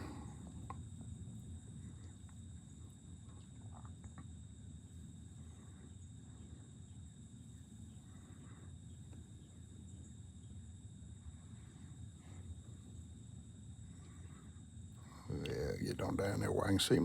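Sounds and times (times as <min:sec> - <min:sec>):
high-pitched insect chorus: 0:05.2 - 0:17.0.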